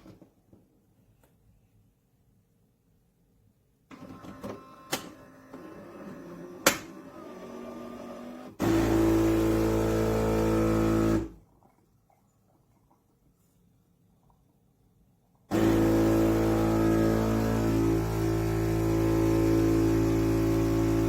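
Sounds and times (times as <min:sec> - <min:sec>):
espresso machine running: 0:05.4 - 0:11.3, 0:15.5 - 0:21.0.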